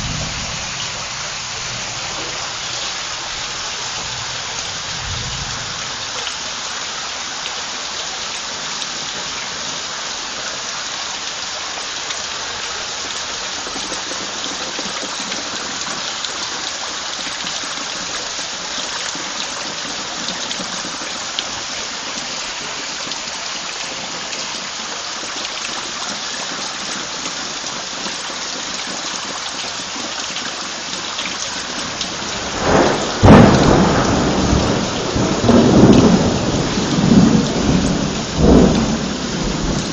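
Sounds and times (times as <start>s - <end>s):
thunder clap and rumble: 0.0s - 6.2s, 31.9s - 39.9s
heavy rain: 0.0s - 39.9s.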